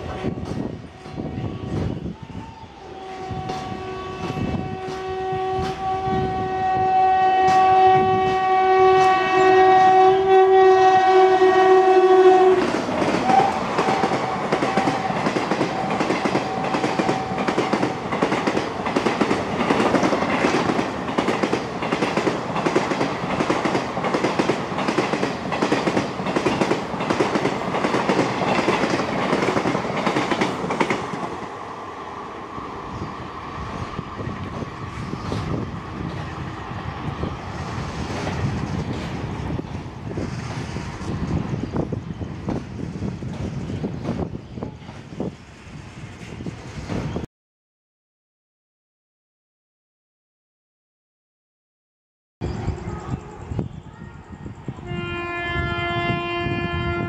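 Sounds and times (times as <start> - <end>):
two-tone train horn: 0.0 - 15.2, 54.8 - 57.0
clickety-clack of wheels: 12.6 - 31.4.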